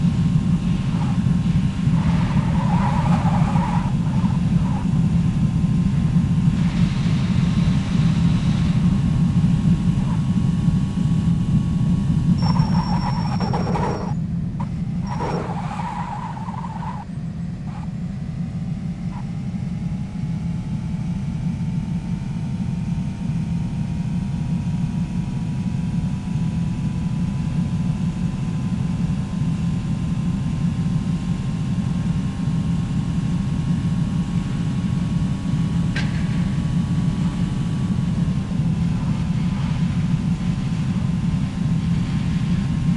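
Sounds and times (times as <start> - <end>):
faint whining tones: 0.0 - 21.1
motor vehicle rumble: 0.0 - 42.9.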